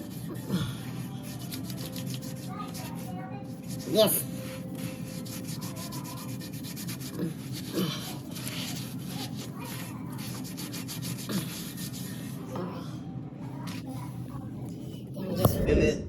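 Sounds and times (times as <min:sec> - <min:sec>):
rubbing and scraping handling noise: 0:00.0 - 0:12.6
steady low hum: 0:00.0 - 0:16.0.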